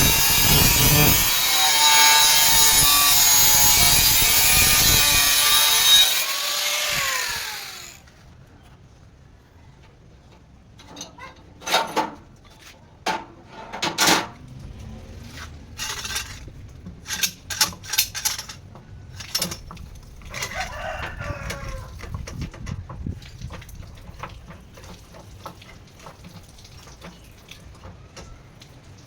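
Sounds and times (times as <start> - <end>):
rooster crowing: 20.3 - 22.0.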